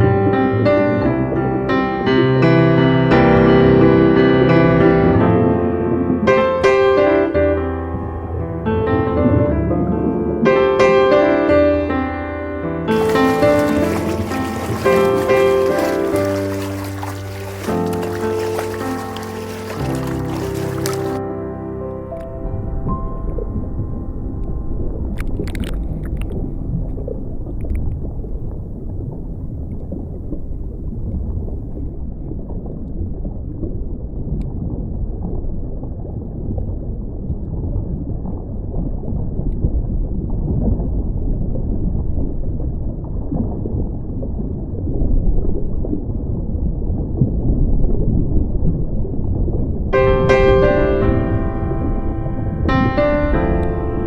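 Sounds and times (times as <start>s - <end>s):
water rushing and gurgling: 12.9s - 29.8s, 49.3s - 54.0s.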